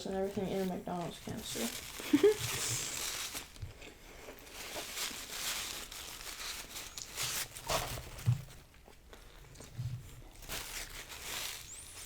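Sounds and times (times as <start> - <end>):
food packaging rustling: 0.0 - 12.0.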